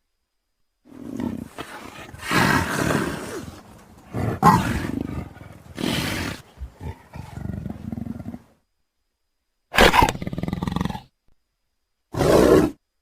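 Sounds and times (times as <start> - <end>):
leopard calling: 0.9 - 8.5.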